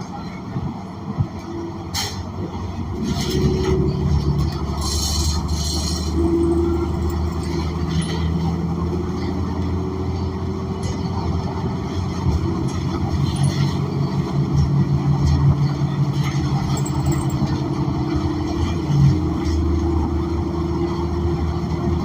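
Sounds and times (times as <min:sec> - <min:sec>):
bus engine drone: 0:00.0 - 0:22.0
light rattles: 0:05.8 - 0:09.0, 0:12.5 - 0:14.2, 0:16.5 - 0:17.6.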